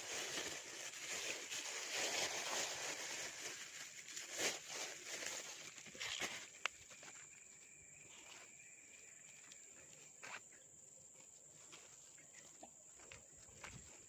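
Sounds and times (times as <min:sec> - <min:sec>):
insects droning: 0:04.8 - 0:14.0.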